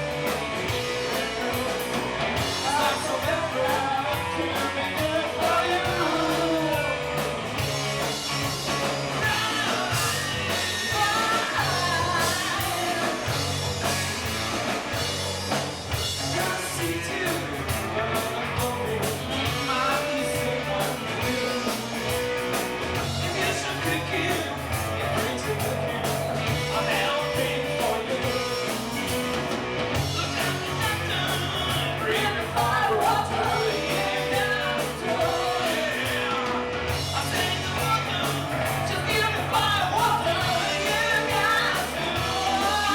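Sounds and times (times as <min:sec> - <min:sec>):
rock band playing: 0:00.0 - 0:42.9
woman singing: 0:39.0 - 0:42.9.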